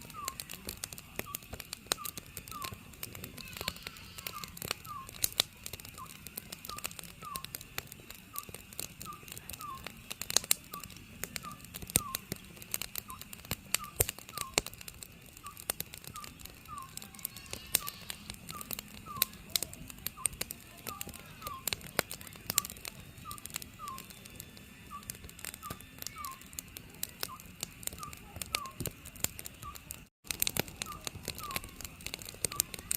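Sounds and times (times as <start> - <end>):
wood fire crackling and popping: 0.0 - 32.9
owl hooting: 1.2 - 2.8, 3.4 - 5.3, 15.4 - 19.4.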